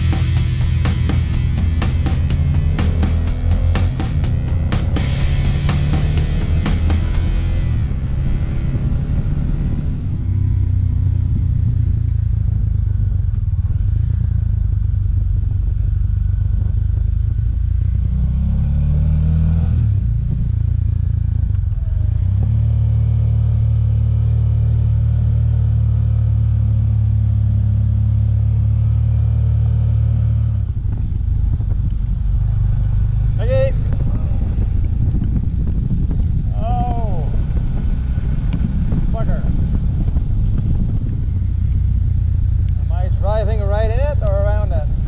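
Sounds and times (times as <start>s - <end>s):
rushing noise: 0.0s - 11.3s
motorcycle engine running: 0.0s - 45.0s.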